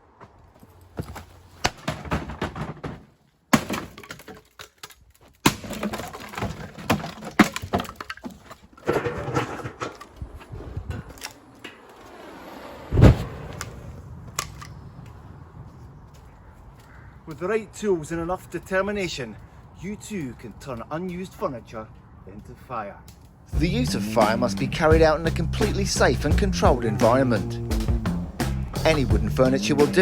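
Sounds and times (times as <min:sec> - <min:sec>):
wooden cabinets being smashed: 0:01.7 - 0:04.6, 0:05.4 - 0:09.8
heavy thud: 0:12.9 - 0:13.6.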